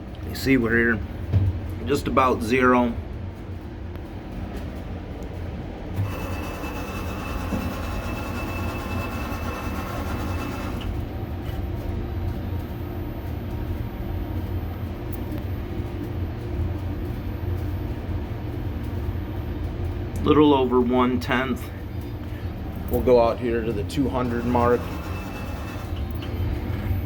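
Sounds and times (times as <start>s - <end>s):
low machine hum: 0.0s - 27.0s
lathe carriage drive whine: 5.9s - 27.0s.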